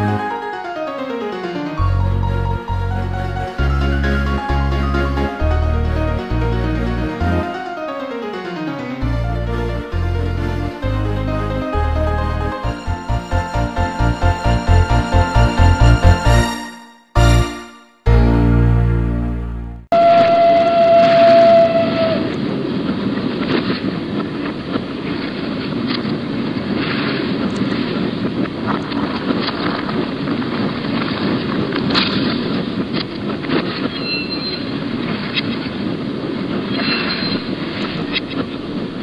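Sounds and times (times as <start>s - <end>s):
train whistle blast: 19.9s - 22.4s.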